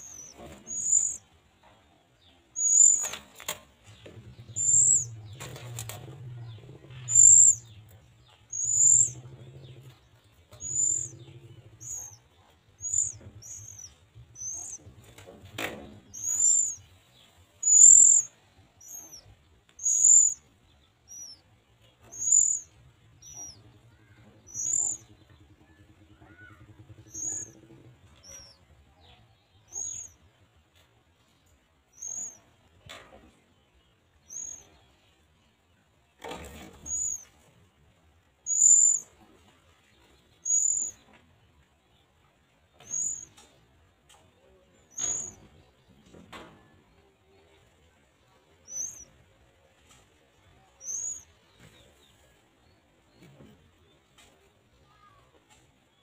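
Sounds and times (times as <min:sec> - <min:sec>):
bird chirps: 0:00.0 - 0:01.3, 0:02.3 - 0:30.2, 0:31.9 - 0:32.5, 0:34.2 - 0:35.0, 0:36.5 - 0:37.4, 0:38.4 - 0:39.2, 0:40.1 - 0:41.2, 0:42.7 - 0:43.5, 0:44.4 - 0:46.2, 0:48.6 - 0:49.2, 0:50.6 - 0:52.3.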